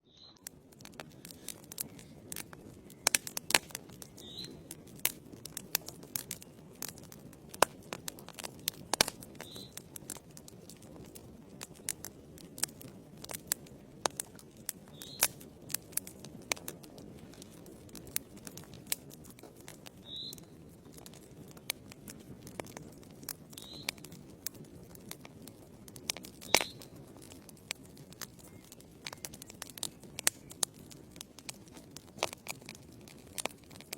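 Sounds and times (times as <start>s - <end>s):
fire crackling and popping: 0.0s - 33.9s
flames rushing: 0.4s - 33.9s.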